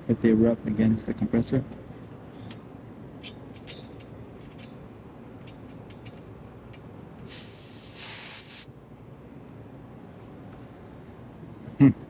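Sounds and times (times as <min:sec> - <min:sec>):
sharp burst of hiss: 0:07.3 - 0:08.7.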